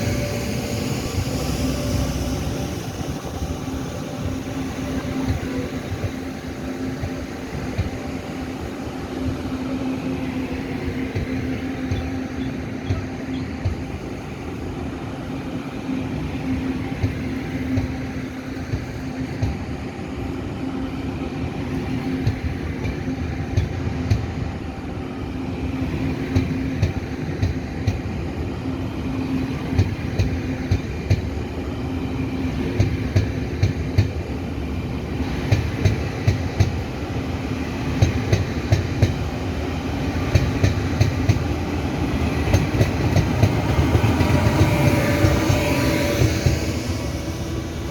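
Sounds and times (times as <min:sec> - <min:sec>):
train hum: 0:00.0 - 0:47.9
train wheels clicking over rail joints: 0:26.3 - 0:28.1, 0:35.4 - 0:36.9, 0:37.8 - 0:47.9.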